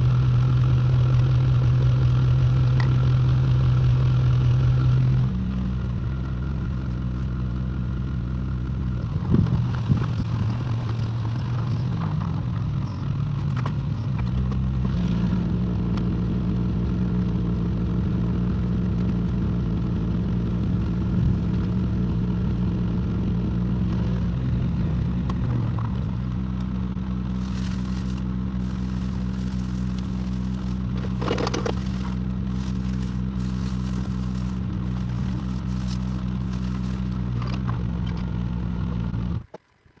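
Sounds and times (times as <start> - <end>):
excavator engine running: 27.0 - 39.5
machine scraping and clattering: 27.3 - 37.6.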